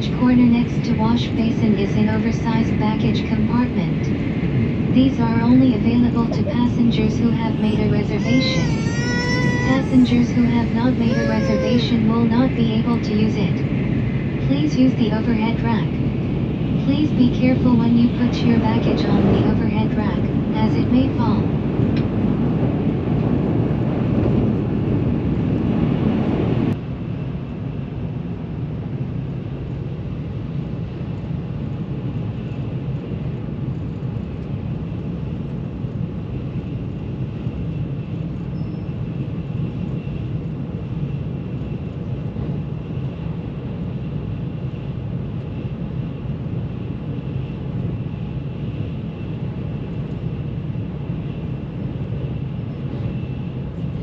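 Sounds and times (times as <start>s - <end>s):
train rumble and rush inside: 0.0s - 54.0s.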